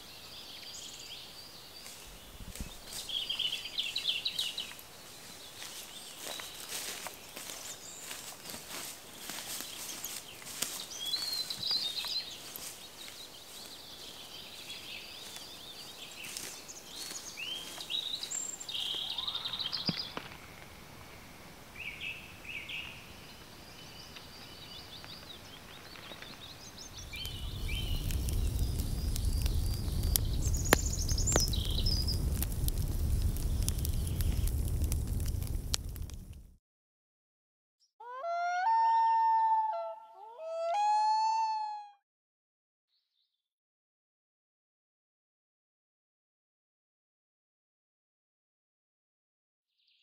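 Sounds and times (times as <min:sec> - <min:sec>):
songbirds chirping and trilling: 0:00.0 - 0:32.3
low rumbling noise: 0:27.0 - 0:36.5.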